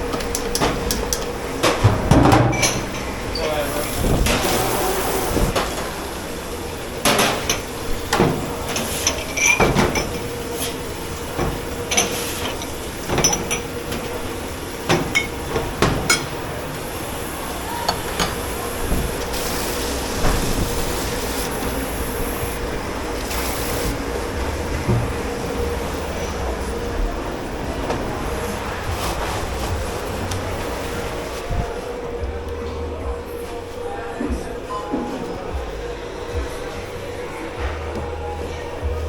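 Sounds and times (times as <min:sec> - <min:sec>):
dishes and utensils clattering: 0:00.0 - 0:06.1, 0:07.0 - 0:19.4
kitchen machinery hum: 0:00.0 - 0:39.0.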